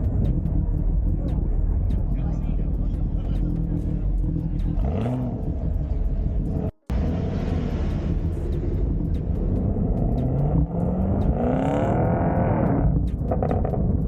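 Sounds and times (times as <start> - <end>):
car engine rumbling and accelerating: 0.0 - 14.0.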